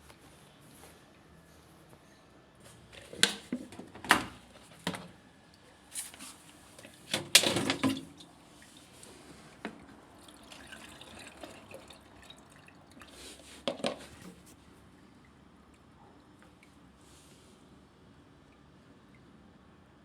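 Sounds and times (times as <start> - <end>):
water dripping and splashing: 10.2 - 13.2
knocks and clatters of handling: 13.6 - 14.5.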